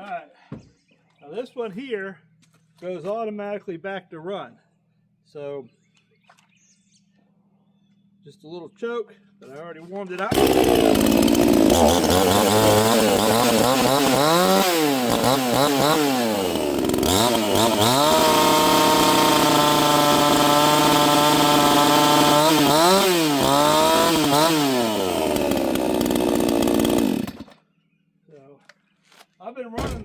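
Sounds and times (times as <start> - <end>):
chainsaw engine revving: 10.2 - 27.6.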